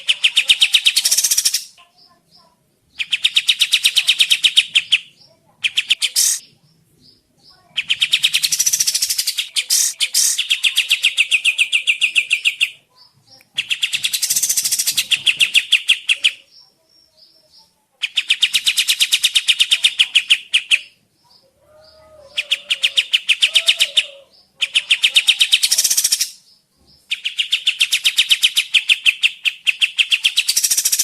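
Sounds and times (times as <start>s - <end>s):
faint bird chirps: 0.0s - 31.0s
songbird rattling trill: 0.1s - 1.8s, 3.0s - 6.4s, 7.8s - 12.7s, 13.6s - 16.4s, 24.7s - 26.4s, 27.2s - 31.0s.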